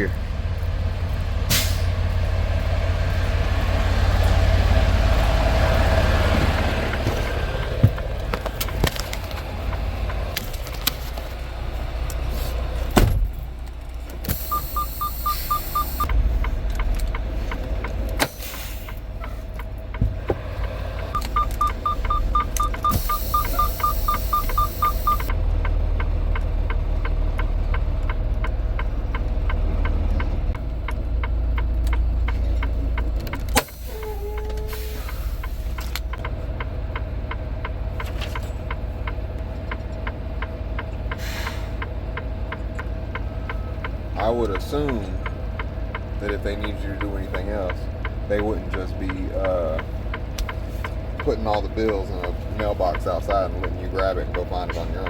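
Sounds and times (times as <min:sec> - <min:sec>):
diesel truck engine idling: 0:00.0 - 0:55.0
fast ticking: 0:14.3 - 0:20.0, 0:20.6 - 0:33.5
rapid electronic beeping: 0:14.4 - 0:16.1, 0:21.2 - 0:25.3.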